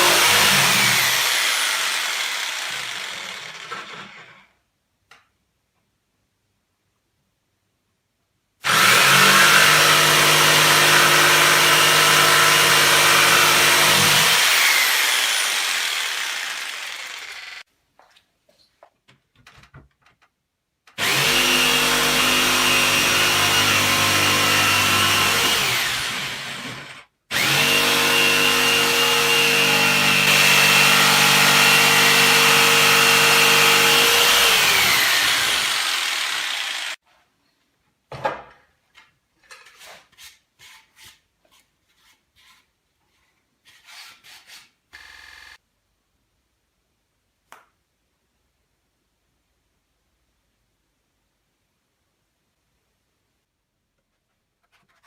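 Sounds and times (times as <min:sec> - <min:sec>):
power tool motor running: 0:00.0 - 0:04.0, 0:08.7 - 0:17.6, 0:21.0 - 0:37.0.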